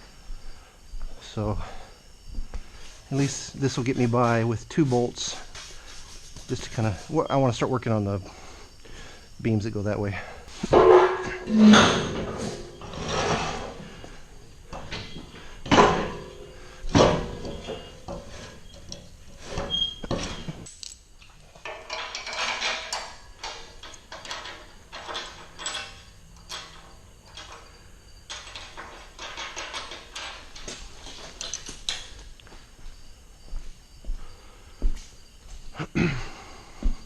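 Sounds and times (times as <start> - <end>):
metal parts clanking and rattling: 10.5 - 32.3
loud metal knocks: 10.6 - 13.8.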